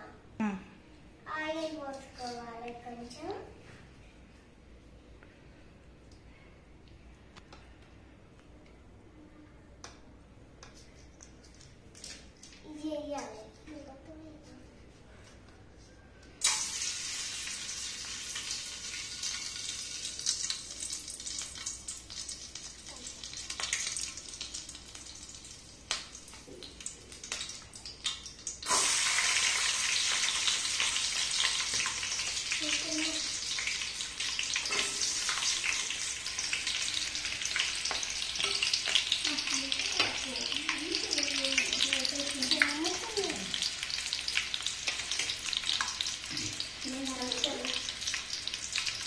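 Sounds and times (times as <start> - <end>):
food sizzling in oil: 16.4 - 49.0.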